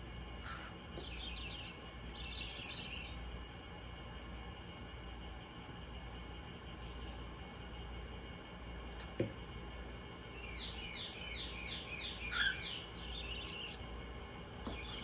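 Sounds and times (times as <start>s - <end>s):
bird chicks chirping: 0.4s - 3.2s, 10.4s - 14.0s, 14.6s - 15.0s.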